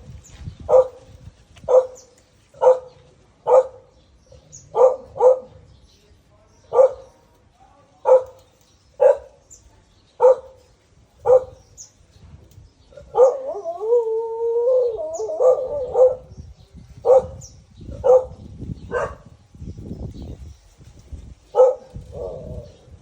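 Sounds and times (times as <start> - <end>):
dog barking: 0.7 - 1.0, 1.7 - 2.0, 2.6 - 3.9, 4.7 - 5.6, 6.7 - 7.2, 8.0 - 8.4, 9.0 - 9.4, 10.2 - 10.6, 11.2 - 11.6, 13.0 - 13.5, 15.4 - 16.2, 17.0 - 17.4, 18.0 - 19.3, 21.5 - 22.4.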